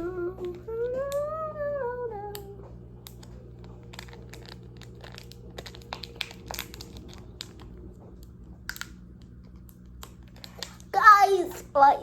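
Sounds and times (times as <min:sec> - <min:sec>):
steady low hum: 0:00.0 - 0:12.0
plastic packet crinkling: 0:03.6 - 0:11.0.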